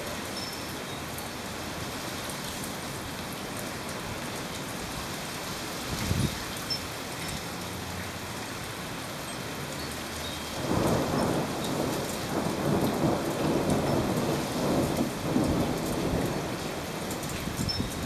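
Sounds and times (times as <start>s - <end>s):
heavy rain: 0.0s - 18.0s
thunder rumbling: 10.6s - 18.0s.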